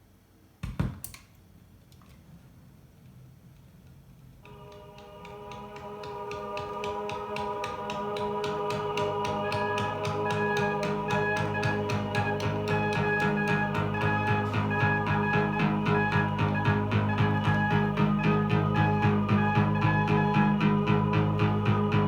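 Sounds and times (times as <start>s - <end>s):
music with quick beat and guitar: 8.4s - 18.7s.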